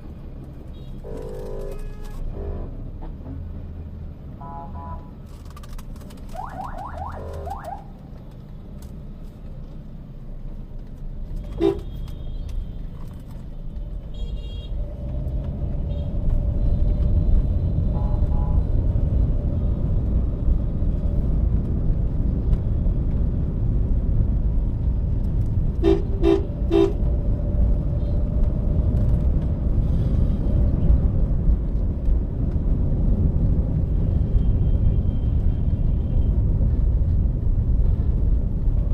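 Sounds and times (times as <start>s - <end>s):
road and engine rumble: 0.0s - 38.9s
vehicle horns honking: 0.7s - 2.7s, 4.4s - 5.1s, 11.5s - 12.4s, 25.8s - 27.0s.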